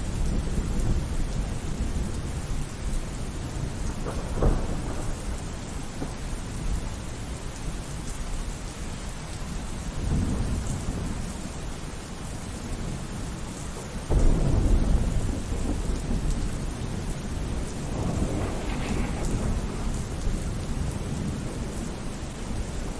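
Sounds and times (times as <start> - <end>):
steady rainfall: 0.0 - 22.9
rolling thunder: 0.3 - 6.9, 14.1 - 22.9.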